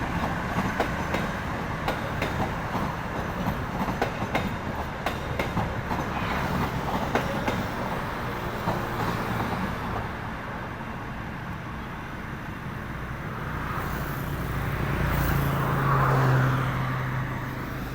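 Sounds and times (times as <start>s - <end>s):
wheels clicking over rail joints: 0.2s - 10.1s.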